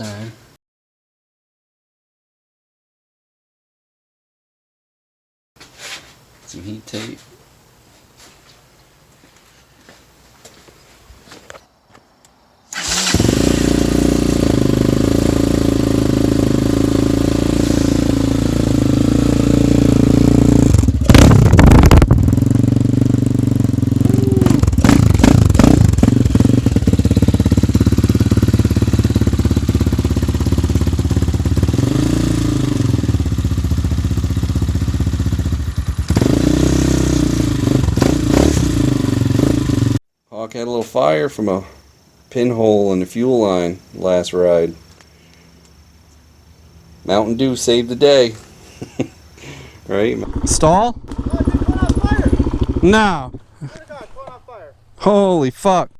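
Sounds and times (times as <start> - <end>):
motorcycle engine revving: 12.7 - 40.0, 48.7 - 53.6.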